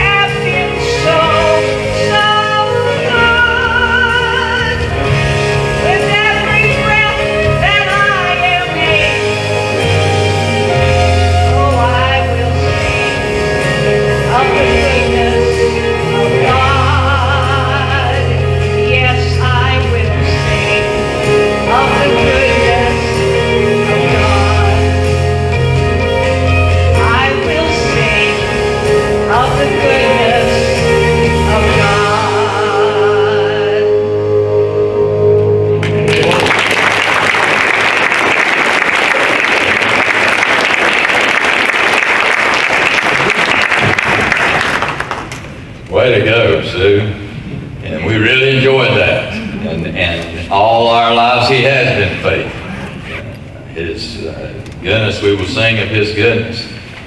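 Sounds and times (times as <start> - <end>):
person singing gospel song: 0.0 - 35.2
instrumental accompaniment: 0.0 - 42.0
congregation clapping: 35.8 - 45.8.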